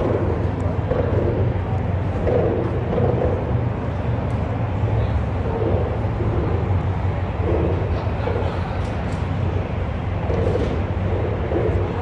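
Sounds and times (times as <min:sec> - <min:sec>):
faint voices: 0:00.0 - 0:12.0
vehicle rumble: 0:00.0 - 0:12.0.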